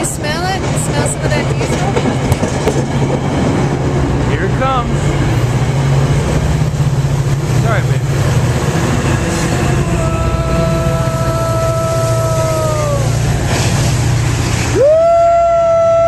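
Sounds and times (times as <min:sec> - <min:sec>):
diesel locomotive rumbling: 0:00.0 - 0:16.0.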